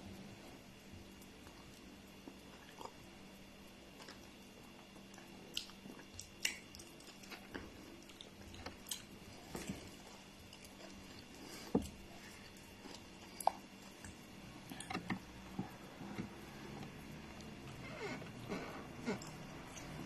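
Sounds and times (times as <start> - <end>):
faint low hum: 0.0 - 20.0
mouth clicks and chewing: 4.0 - 15.0.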